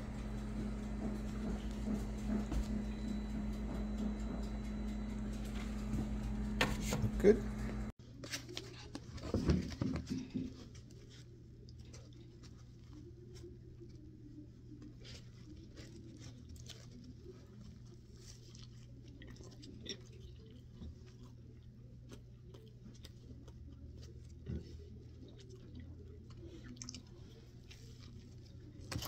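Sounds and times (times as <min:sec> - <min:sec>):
steady low hum: 0:00.0 - 0:08.0
wet chewing with crunches: 0:10.6 - 0:29.0.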